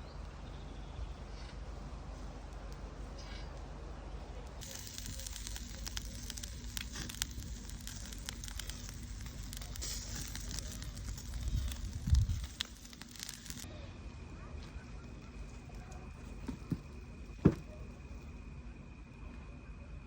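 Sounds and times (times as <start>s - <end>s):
wood fire crackling and popping: 4.4s - 13.7s, 15.1s - 18.4s
wind rumble on microphone: 10.8s - 13.0s.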